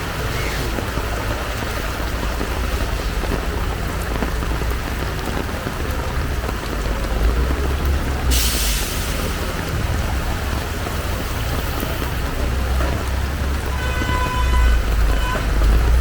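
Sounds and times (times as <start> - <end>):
heavy rain pouring: 0.0 - 16.0
loud hiss: 8.3 - 9.6.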